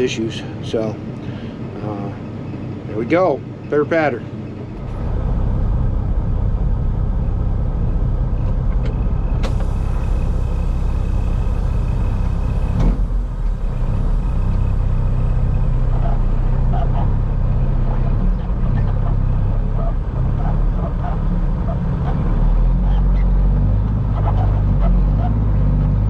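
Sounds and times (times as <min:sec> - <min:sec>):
truck diesel engine rumbling: 0:00.0 - 0:26.0
high-toned hiss: 0:09.4 - 0:15.9.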